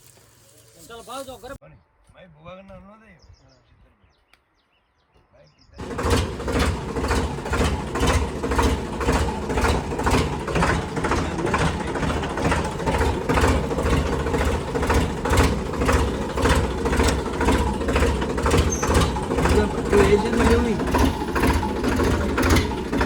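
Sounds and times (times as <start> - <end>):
tractor diesel engine knocking: 5.8 - 23.0.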